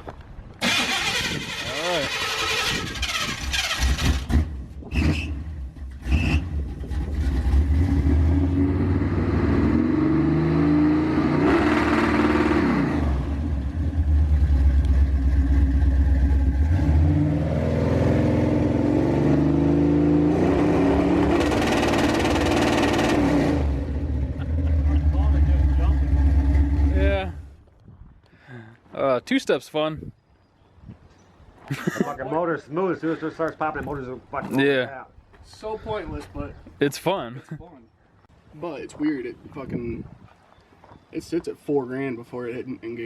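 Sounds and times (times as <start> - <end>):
truck engine revving: 0.6 - 27.5
exhaust popping: 20.5 - 27.5.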